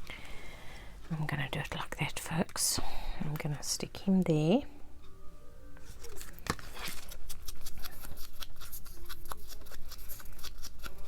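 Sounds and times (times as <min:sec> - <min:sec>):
paper rustling: 0:05.8 - 0:10.6
scissors snipping paper: 0:06.0 - 0:11.0.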